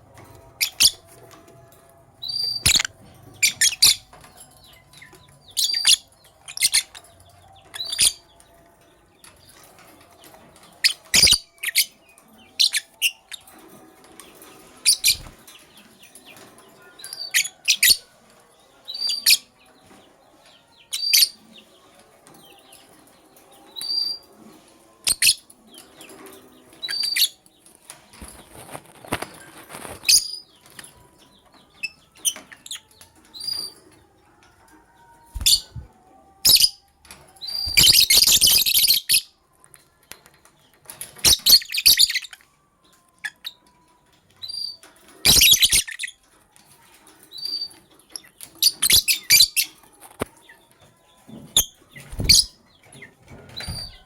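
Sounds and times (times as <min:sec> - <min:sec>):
lovebirds chirping: 0:02.2 - 0:13.6, 0:14.2 - 0:24.3, 0:24.9 - 0:39.4, 0:47.3 - 0:54.0.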